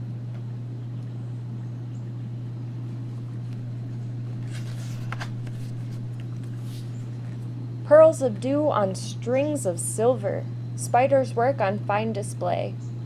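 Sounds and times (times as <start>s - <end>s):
steady low hum: 0.0s - 13.0s
soft rustling: 2.9s - 7.5s.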